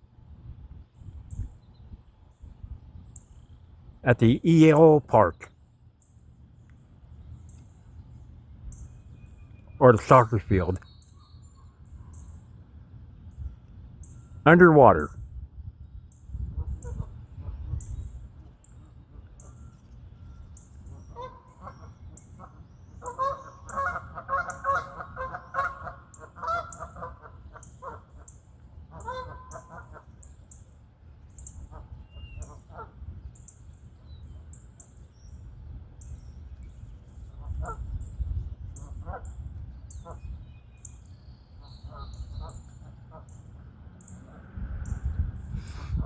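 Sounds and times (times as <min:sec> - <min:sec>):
geese honking: 0:21.0 - 0:28.3, 0:28.9 - 0:30.1.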